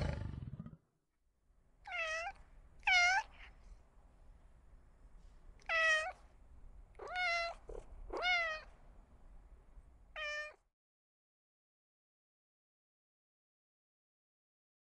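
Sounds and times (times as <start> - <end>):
cat meowing: 1.9 - 3.5, 5.6 - 6.2, 7.0 - 8.7, 10.2 - 10.6.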